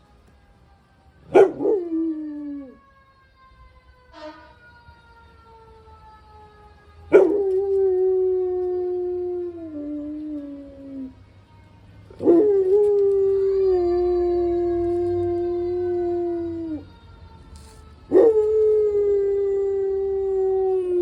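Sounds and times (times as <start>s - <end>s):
fire engine siren wailing: 0.0s - 21.0s
dog howling: 1.3s - 2.8s, 7.1s - 11.1s, 12.1s - 16.8s, 18.1s - 21.0s.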